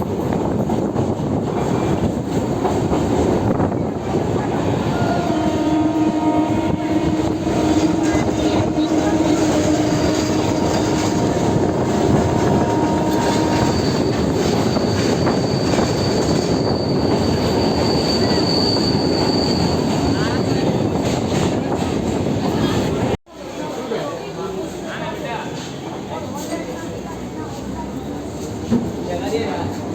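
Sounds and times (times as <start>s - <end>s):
train wheels rumbling on rails: 0.0s - 29.9s
high wheel squeal: 12.4s - 21.0s.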